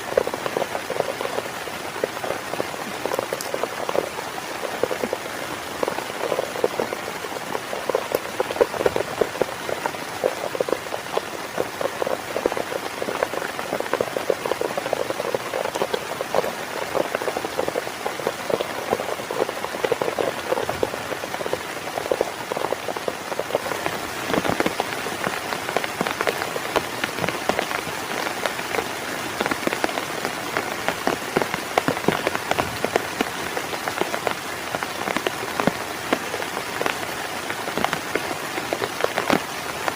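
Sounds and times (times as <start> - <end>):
heavy rain drumming on a tent: 0.0 - 39.9.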